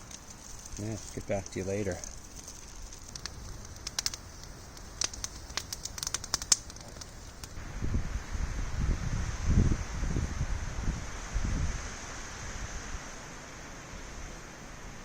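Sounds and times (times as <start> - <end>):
campfire crackling and popping: 0.0 - 7.6
wind buffeting microphone: 2.9 - 11.9.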